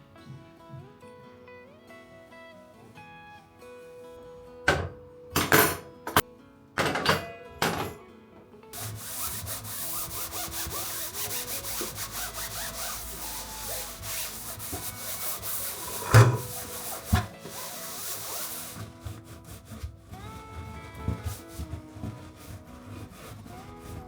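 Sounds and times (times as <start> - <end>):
rubbing strokes on a surface: 8.8 - 24.0.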